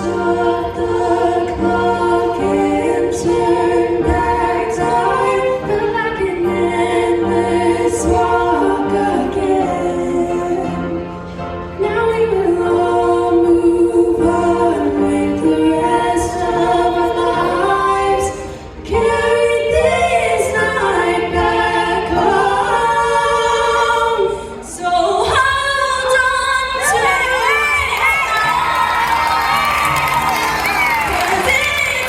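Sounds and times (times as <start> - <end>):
choir-like wordless singing: 0.0 - 32.0
audience cheering and shouting: 26.8 - 32.0.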